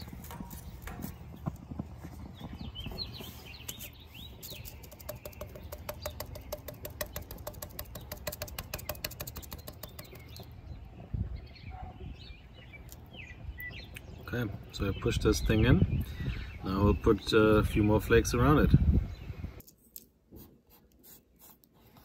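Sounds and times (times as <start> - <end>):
small birds chirping: 0.0 - 19.6
rapid even clicks: 4.5 - 10.5.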